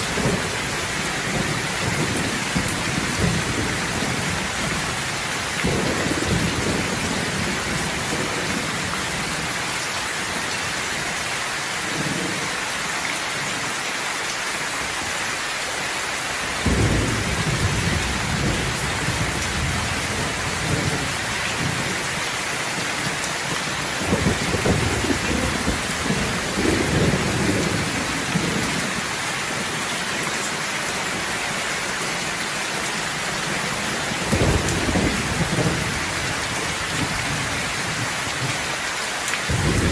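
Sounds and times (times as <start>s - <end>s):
thunder rumbling: 0.0s - 9.7s, 16.6s - 30.2s, 33.5s - 38.2s, 39.5s - 39.9s
rain hissing: 0.0s - 39.9s.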